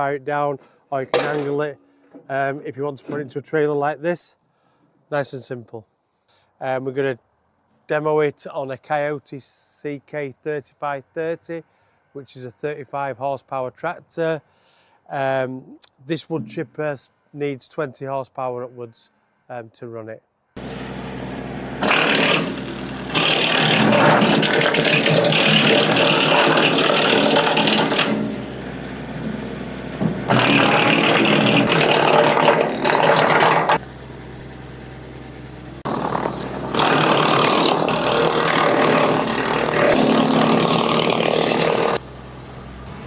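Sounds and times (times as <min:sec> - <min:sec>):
machine humming: 0:20.6 - 0:42.0
wood chipper shredding branches: 0:20.6 - 0:43.0.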